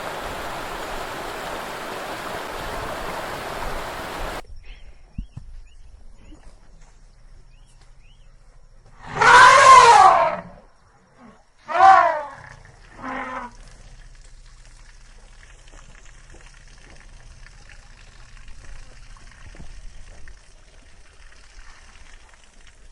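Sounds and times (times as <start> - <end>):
crackling hiss: 0.0 - 4.4
elephant trumpeting: 9.0 - 10.6, 11.6 - 13.6.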